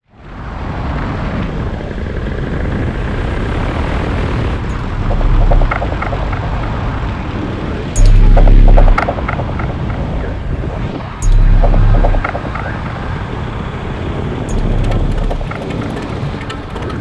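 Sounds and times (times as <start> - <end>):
rushing wind: 0.0 - 17.0
wind buffeting on microphone: 0.2 - 17.0
drone propeller noise: 4.7 - 17.0.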